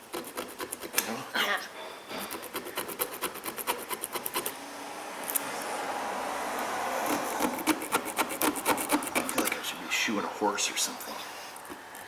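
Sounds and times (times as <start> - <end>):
hand file rasping on metal: 2.2 - 4.5, 7.0 - 9.6.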